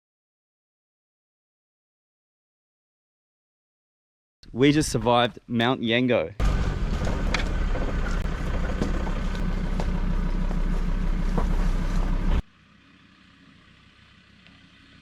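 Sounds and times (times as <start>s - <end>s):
vehicle engine and road noise: 6.4s - 15.0s.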